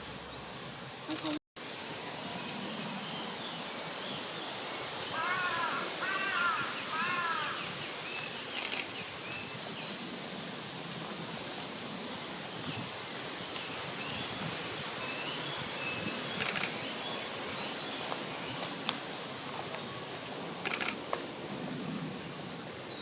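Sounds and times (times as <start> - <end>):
woodland background: 0.0 - 23.0
bird calling: 5.1 - 8.9
brief crackle: 8.6 - 9.4.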